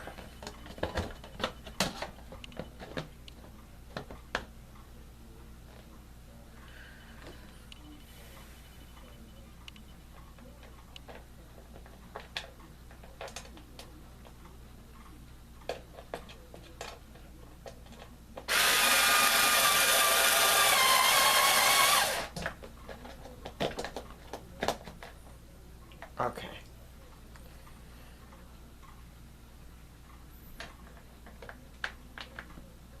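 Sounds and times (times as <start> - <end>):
power screwdriver whining: 18.5 - 22.3.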